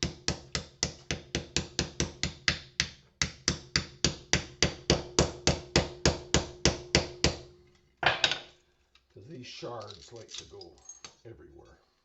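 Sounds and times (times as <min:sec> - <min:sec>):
hammer smashing porcelain: 0:08.0 - 0:08.5.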